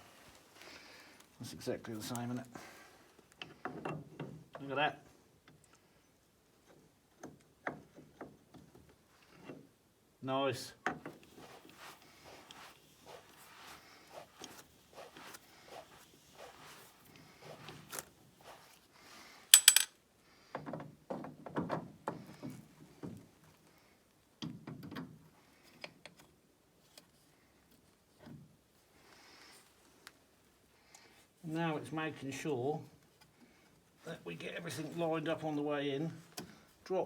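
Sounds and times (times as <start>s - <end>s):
metal parts clicking and scraping: 19.5s - 19.9s
sharp metallic clink: 19.6s - 19.9s.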